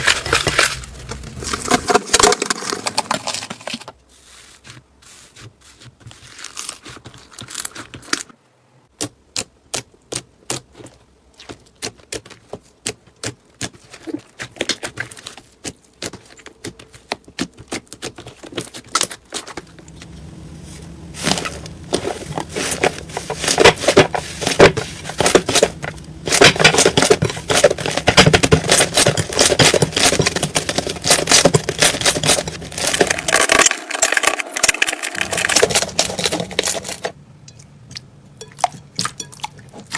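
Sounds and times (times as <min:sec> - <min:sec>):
slime popping and crackling: 0:23.4 - 0:36.3.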